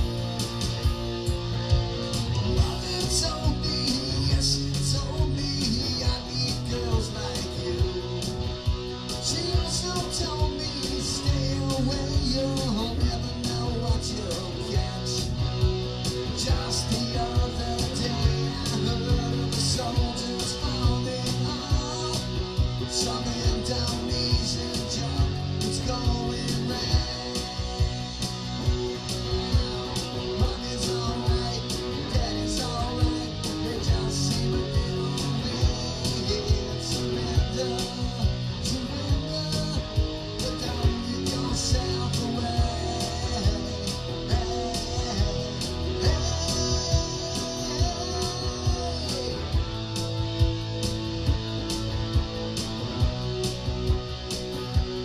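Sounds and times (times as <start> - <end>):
rock guitar: 0.0 - 55.0.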